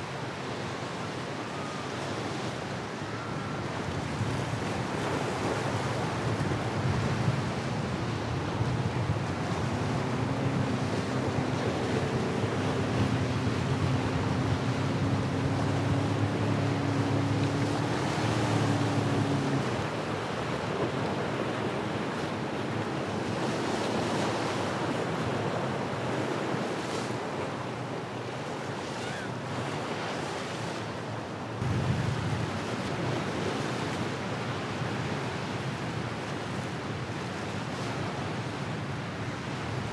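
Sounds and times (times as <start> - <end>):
surf and breaking waves: 0.0 - 39.9
boat engine droning: 0.1 - 39.9
wind buffeting microphone: 3.8 - 22.7, 31.6 - 33.5.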